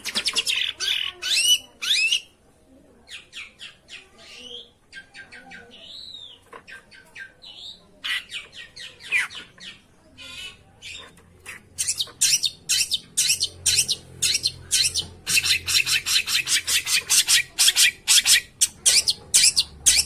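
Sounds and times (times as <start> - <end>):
harsh rasping bird notes: 8.0 - 20.0.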